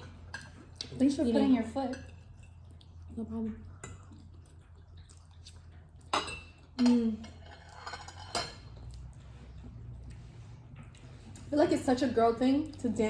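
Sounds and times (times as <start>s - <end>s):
forks clinking on plates: 6.1s - 8.8s.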